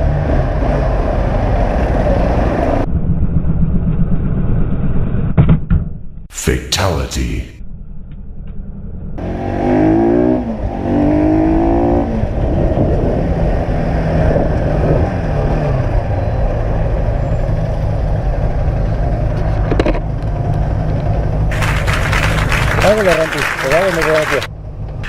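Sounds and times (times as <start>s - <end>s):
road and wind noise: 0.0s - 5.9s, 7.7s - 25.0s
motorcycle engine accelerating: 8.6s - 20.0s.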